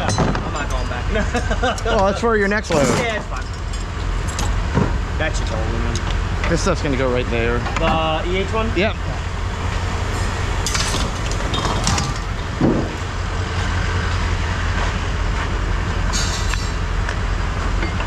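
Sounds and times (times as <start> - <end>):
vehicle engine idling: 0.0 - 18.0
scrap metal clanking: 10.1 - 13.0.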